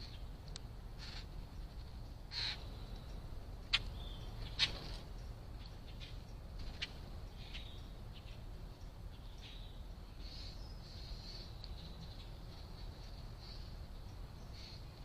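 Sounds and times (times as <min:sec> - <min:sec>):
steady low background noise: 0:00.0 - 0:15.0
wild bird calls: 0:00.9 - 0:15.0.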